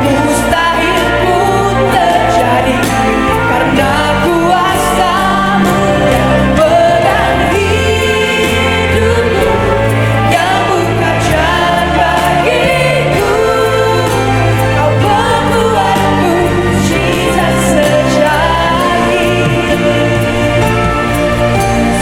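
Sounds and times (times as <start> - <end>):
bass notes: 0.0 - 22.0
live band playing: 0.0 - 22.0
person singing: 0.0 - 22.0
steady drum beat: 0.0 - 22.0.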